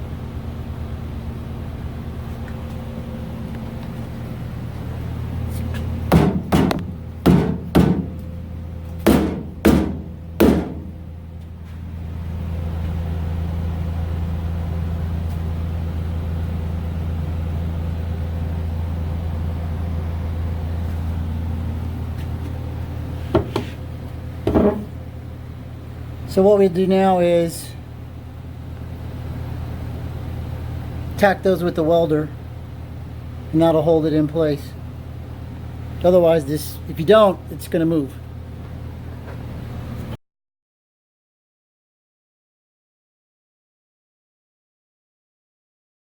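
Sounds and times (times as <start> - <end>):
steady low hum: 0.0 - 40.2
sharp hammer-like knocks: 6.1 - 8.2, 9.0 - 11.0.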